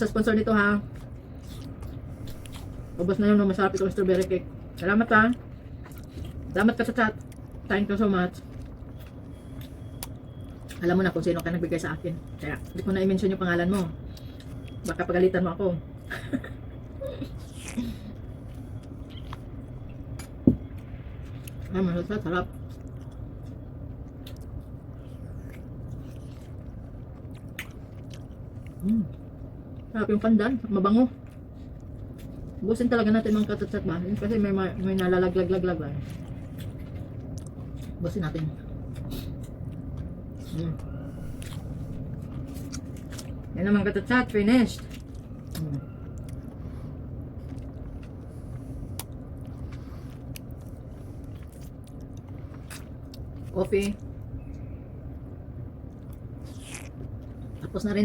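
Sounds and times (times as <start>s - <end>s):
low background rumble: 0.0s - 58.0s
person chewing cake: 0.0s - 58.0s
mouth clicks: 56.5s - 57.0s.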